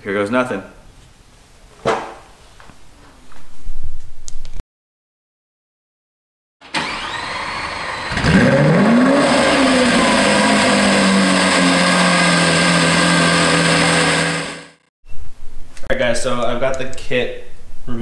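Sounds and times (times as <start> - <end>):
car engine revving: 6.8 - 14.9.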